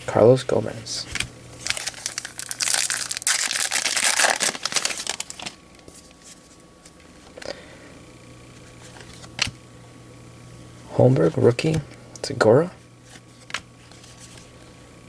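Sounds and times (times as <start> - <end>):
wrapper tearing and crinkling: 1.6 - 5.6.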